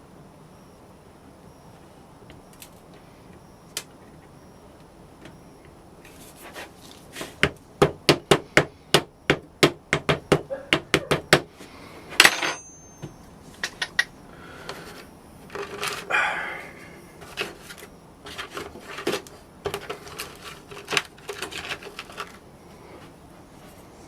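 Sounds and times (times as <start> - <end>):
metallic taps and clinks: 12.2 - 14.1.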